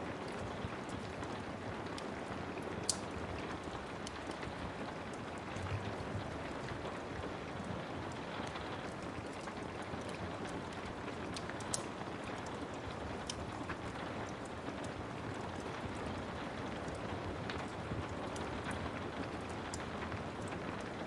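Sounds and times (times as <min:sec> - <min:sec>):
steady rain: 0:00.0 - 0:21.0
wood fire crackling: 0:00.0 - 0:21.0.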